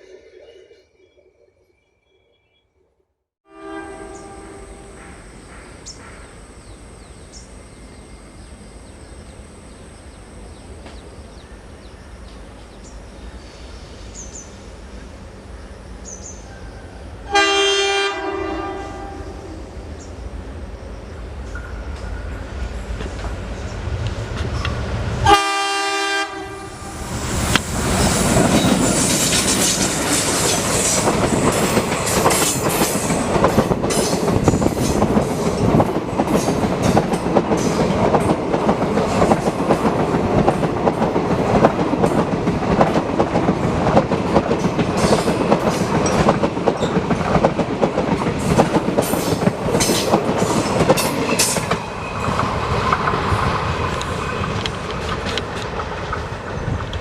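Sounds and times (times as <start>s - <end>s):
train horn: 3.4s - 6.2s, 16.5s - 19.7s, 25.2s - 27.0s
train wheels clattering over rail joints: 27.5s - 57.0s.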